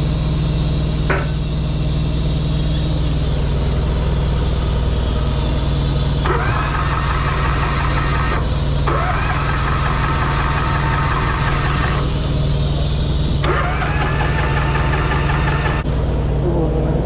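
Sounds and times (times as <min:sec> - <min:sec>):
diesel engine idling: 0:00.0 - 0:17.0
starter motor cranking: 0:02.7 - 0:15.9.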